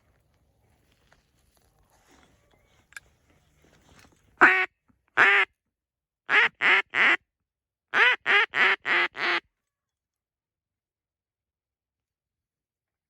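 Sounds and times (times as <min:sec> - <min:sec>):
duck quacking: 0:04.4 - 0:05.5, 0:06.3 - 0:07.2, 0:07.9 - 0:09.4.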